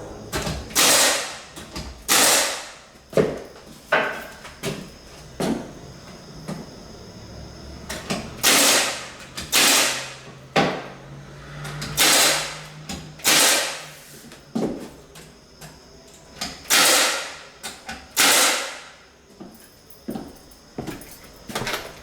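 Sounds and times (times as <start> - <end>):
air tool hissing bursts: 0.8 - 1.4, 2.1 - 2.6, 16.7 - 17.3.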